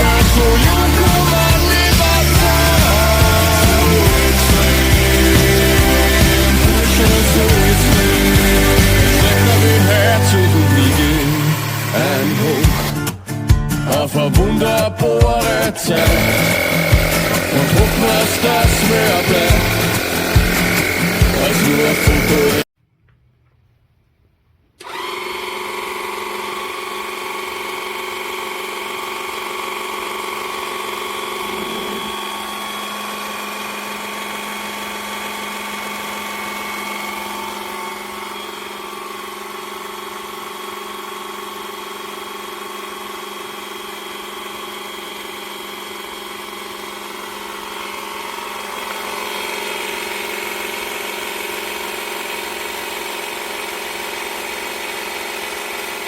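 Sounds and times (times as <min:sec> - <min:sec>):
motor droning hum: 0:00.0 - 0:13.0, 0:15.5 - 0:22.6, 0:30.8 - 0:39.4.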